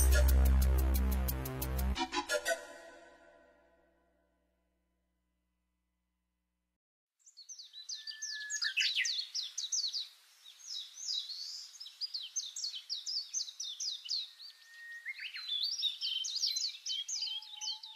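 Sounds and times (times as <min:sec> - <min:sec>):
songbirds chirping: 0:07.2 - 0:17.9
long steady bird whistle: 0:07.5 - 0:17.9.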